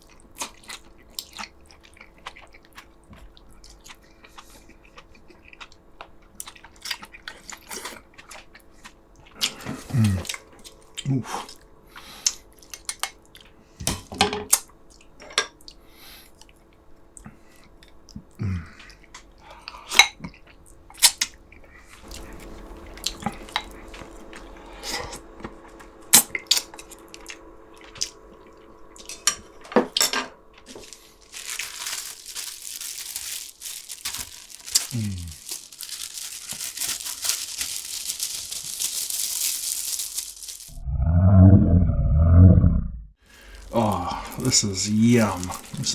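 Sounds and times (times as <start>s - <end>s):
chewing: 0.0s - 40.8s, 43.3s - 45.9s
steady hiss: 43.3s - 45.9s.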